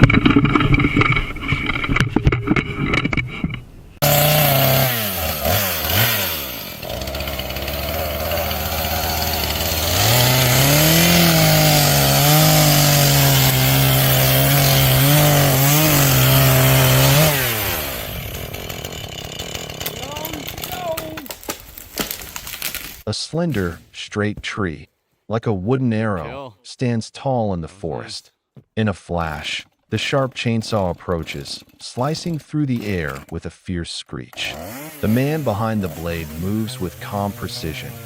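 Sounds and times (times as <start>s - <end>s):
chainsaw engine revving: 4.0s - 23.0s, 34.4s - 38.0s
chainsaw sawing into wood: 4.0s - 23.1s, 30.0s - 33.3s, 34.4s - 38.0s.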